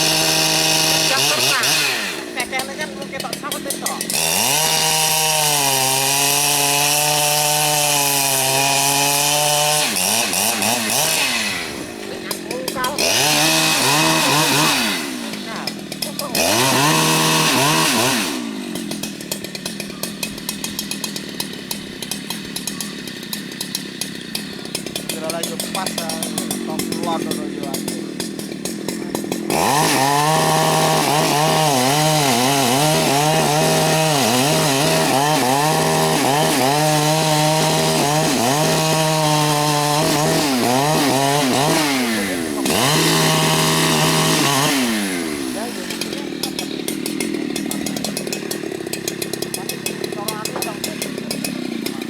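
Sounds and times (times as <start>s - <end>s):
chainsaw revving: 0.0s - 52.0s.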